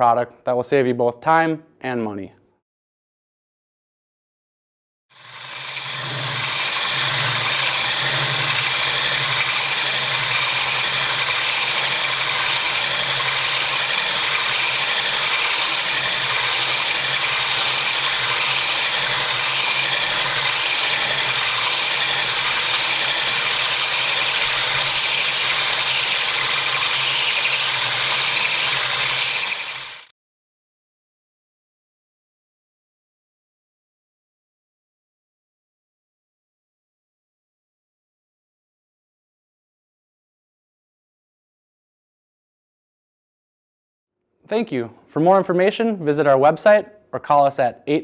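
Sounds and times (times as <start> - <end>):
electric drill with hole saw: 5.2 - 30.1.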